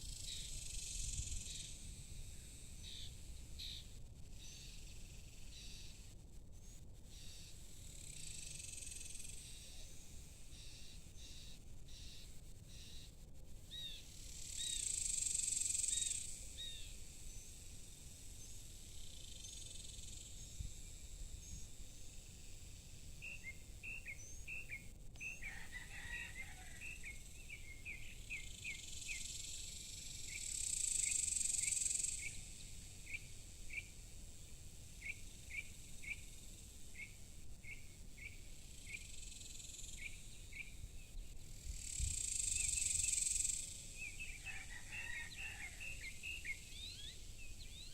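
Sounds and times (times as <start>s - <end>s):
short quick insect chirps: 7.1s - 9.7s, 13.7s - 25.4s, 26.8s - 34.1s, 34.9s - 44.4s, 45.8s - 47.9s
high-pitched insect drone: 26.9s - 33.9s, 41.5s - 44.0s.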